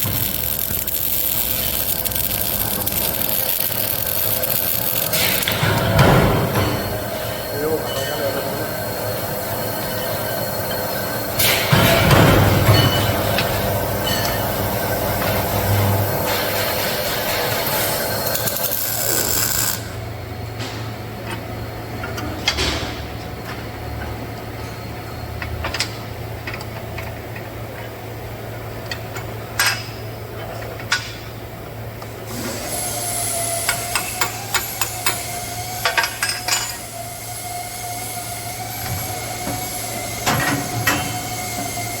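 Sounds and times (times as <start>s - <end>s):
thin steady whine: 0.0s - 16.4s
electrical hum: 0.0s - 26.4s
hiss: 32.3s - 42.0s.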